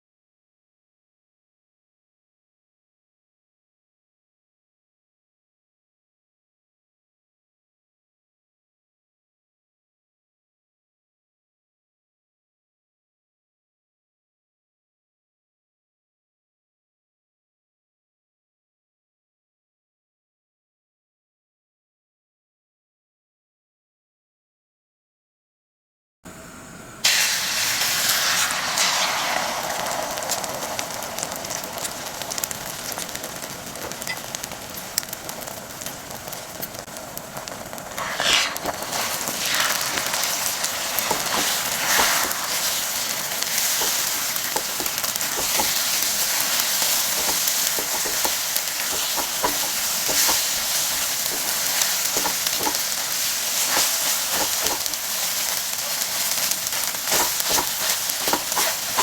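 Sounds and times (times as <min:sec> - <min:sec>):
food sizzling in hot oil: 0:27.0 - 0:59.0.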